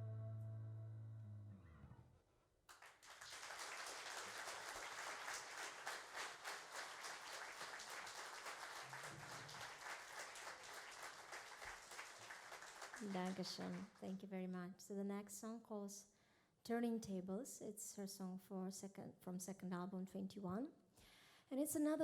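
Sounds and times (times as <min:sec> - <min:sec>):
audience applauding: 0:02.7 - 0:14.0.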